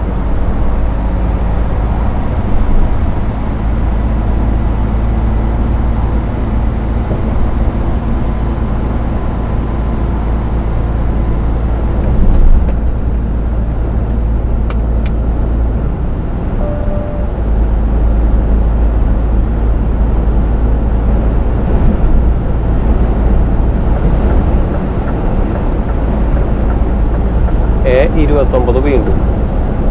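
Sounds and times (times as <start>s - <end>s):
truck engine and road noise: 0.0s - 29.9s
short faint tone: 16.6s - 17.6s.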